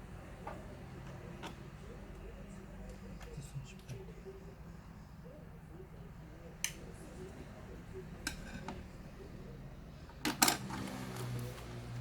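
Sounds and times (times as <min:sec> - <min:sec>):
clicks of laptop parts and tools: 0:10.2 - 0:11.3.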